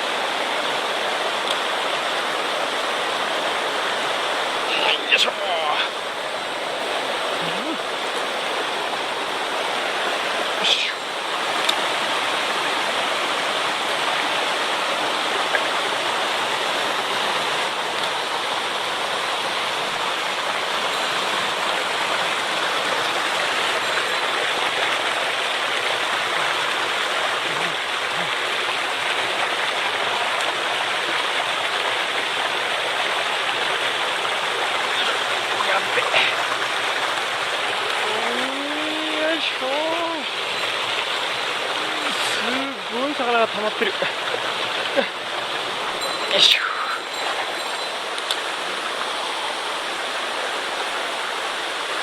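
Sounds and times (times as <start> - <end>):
stream rushing over rocks: 0.0 - 52.0.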